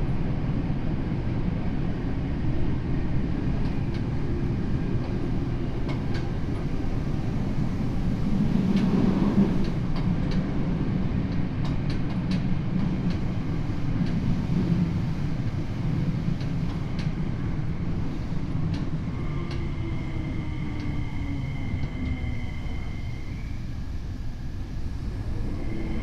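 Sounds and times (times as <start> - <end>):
wheel and rail rumble: 0.0 - 26.0.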